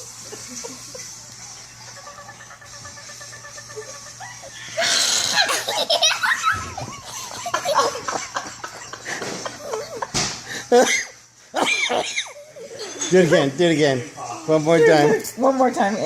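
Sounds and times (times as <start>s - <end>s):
children giggling: 0.0s - 1.2s, 1.8s - 13.1s.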